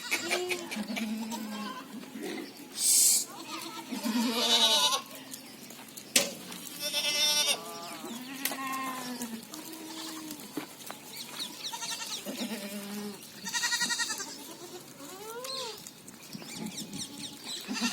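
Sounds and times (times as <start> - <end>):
goats bleating: 0.0 - 2.4, 3.3 - 5.2, 6.7 - 10.5, 11.5 - 15.8, 16.9 - 17.9.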